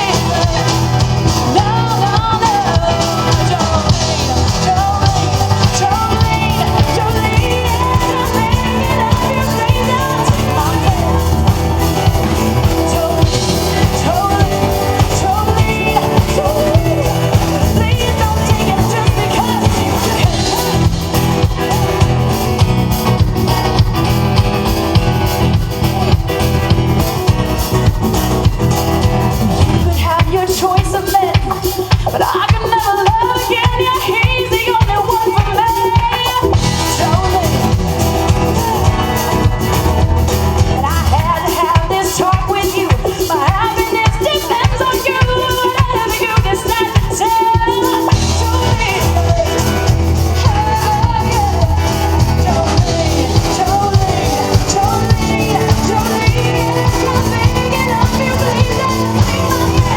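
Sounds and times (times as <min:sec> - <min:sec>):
country band music: 0:00.0 - 0:59.9.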